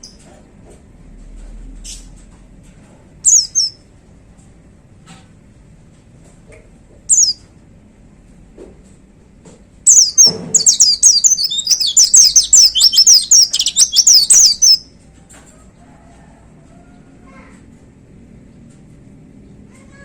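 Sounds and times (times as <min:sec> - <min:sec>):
bird singing high whistled notes: 0:09.9 - 0:14.8.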